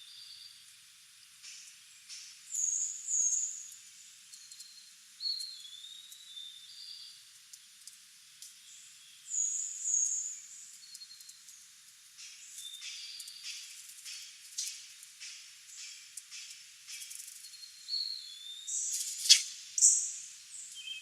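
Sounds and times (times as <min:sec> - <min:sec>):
small ticks: 0:03.7 - 0:06.3, 0:07.3 - 0:08.6, 0:10.6 - 0:17.7.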